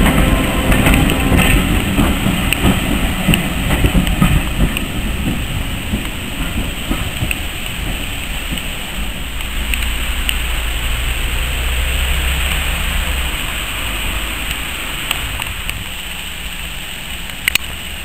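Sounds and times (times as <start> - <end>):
train wheels clicking over rail joints: 0.0 - 11.1.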